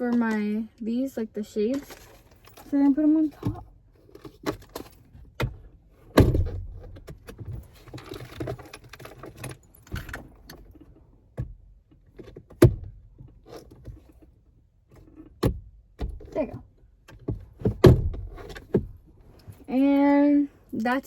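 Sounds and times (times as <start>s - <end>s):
small items clinking and rattling: 1.5s - 3.6s.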